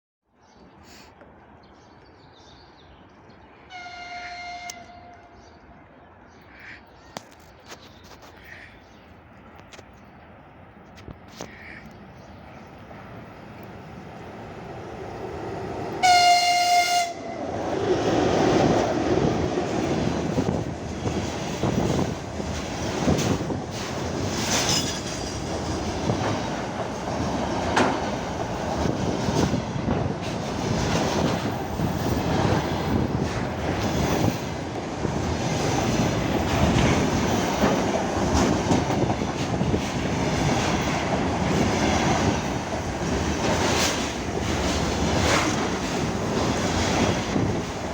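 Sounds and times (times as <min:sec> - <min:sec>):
locomotive horn blast: 0:03.7 - 0:05.4, 0:16.0 - 0:17.5
freight train rumbling past: 0:12.0 - 0:47.9
wheels clattering over rail joints: 0:18.6 - 0:47.9.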